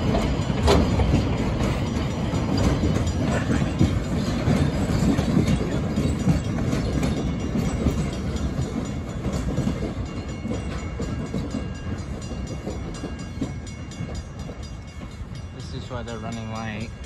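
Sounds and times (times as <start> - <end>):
train carriages rolling over rails: 0.0 - 17.0
wheels clicking on rail joints: 0.0 - 17.0.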